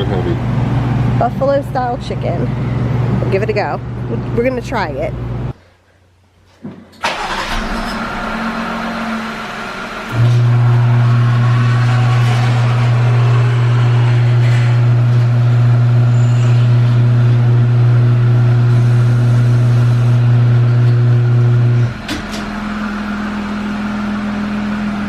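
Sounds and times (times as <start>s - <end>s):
loud buzzing hum: 7.4s - 24.9s.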